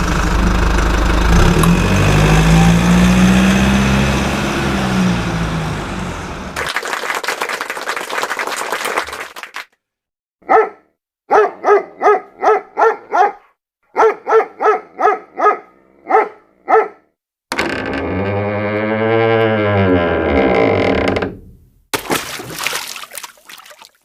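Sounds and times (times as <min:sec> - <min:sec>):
dog barking: 0:10.4 - 0:17.1.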